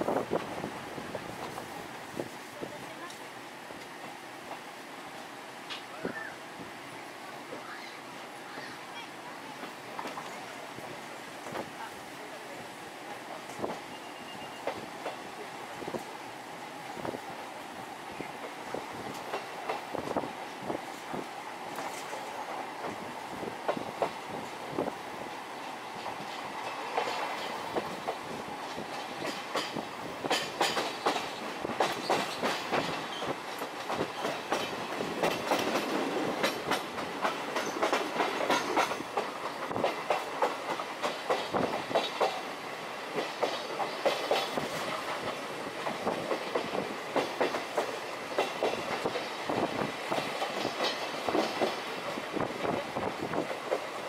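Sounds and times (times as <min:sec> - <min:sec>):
train wheels clicking over rail joints: 0:13.0 - 0:16.2, 0:18.3 - 0:54.0.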